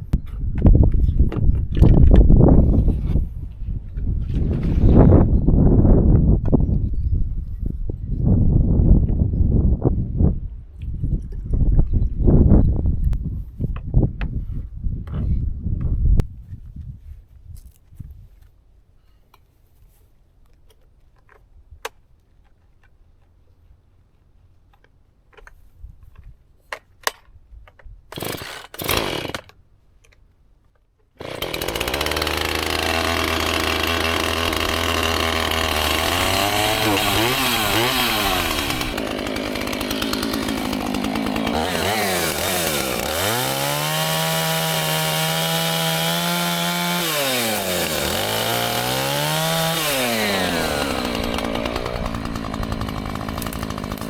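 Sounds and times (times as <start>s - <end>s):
chainsaw engine revving: 28.1s - 29.5s, 31.2s - 54.0s
starter cord rasps: 28.1s - 29.6s, 31.2s - 54.0s.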